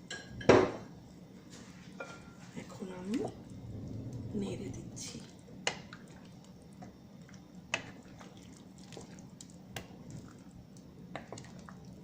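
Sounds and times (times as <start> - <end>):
low steady hum: 0.0 - 12.0
spoon stirring soup: 5.3 - 12.0.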